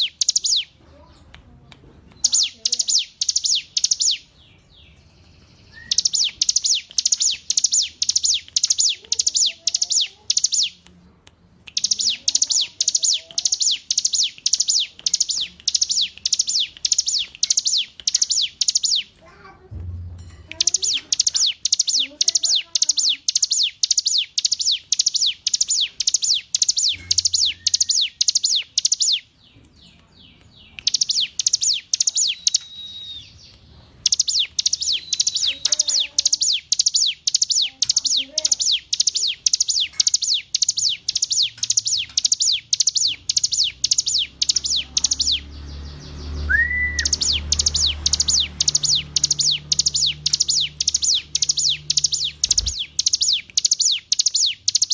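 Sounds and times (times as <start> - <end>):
bird singing high sharp notes: 0.0 - 0.8, 2.2 - 10.8, 11.7 - 19.2, 20.2 - 29.6, 30.2 - 54.9.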